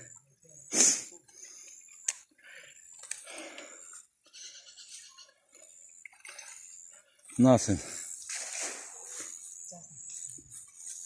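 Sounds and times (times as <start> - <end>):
faint splashing: 5.5 - 9.4
net splashing into water: 8.3 - 9.1.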